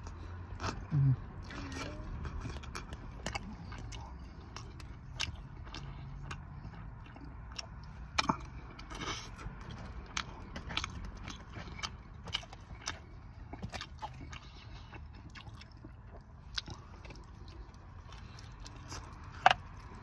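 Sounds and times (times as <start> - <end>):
man chewing crunchy food: 0.0 - 20.0.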